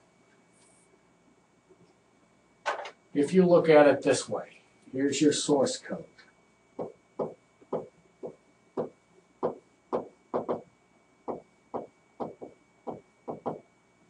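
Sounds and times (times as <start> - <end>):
stylus tapping on a screen: 6.8 - 10.6.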